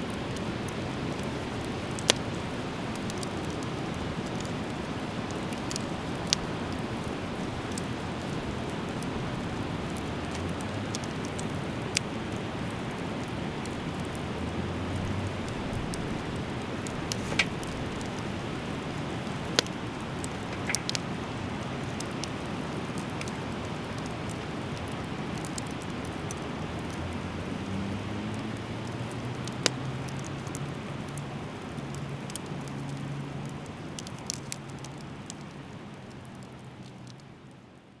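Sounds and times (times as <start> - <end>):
fire popping and crackling: 0.0 - 37.6
fire hissing: 12.8 - 27.2.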